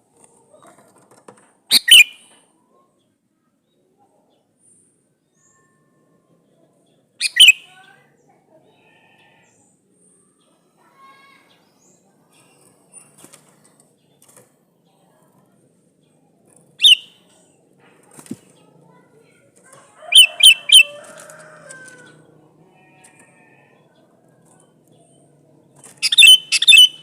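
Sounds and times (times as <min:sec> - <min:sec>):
bird sharp calls: 0:01.7 - 0:02.3, 0:07.2 - 0:07.7, 0:16.8 - 0:17.2, 0:20.1 - 0:21.0, 0:25.9 - 0:27.0
bird soft chirps: 0:01.7 - 0:02.3.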